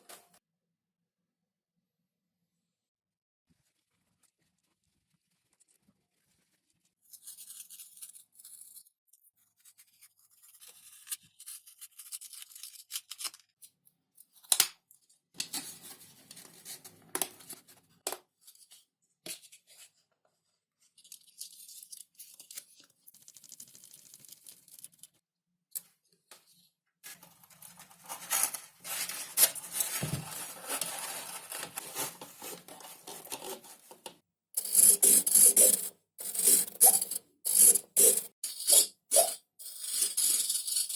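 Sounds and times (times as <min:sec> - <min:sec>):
scraping and cutting foam: 0:27.0 - 0:40.9.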